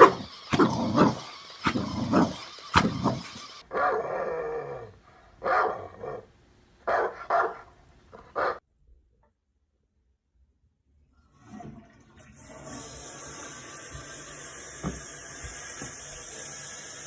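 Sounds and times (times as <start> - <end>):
dog barking and growling: 0.0 - 8.6.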